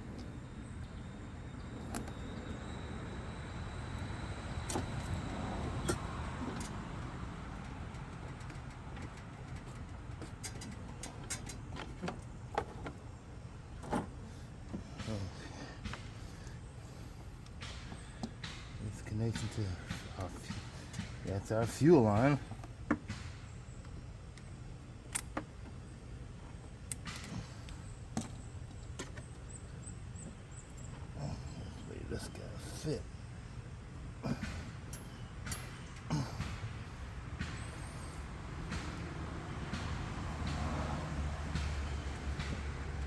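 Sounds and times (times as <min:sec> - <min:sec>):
steady low hum: 0:00.0 - 0:43.0
hands clicking on mower parts: 0:05.8 - 0:13.0.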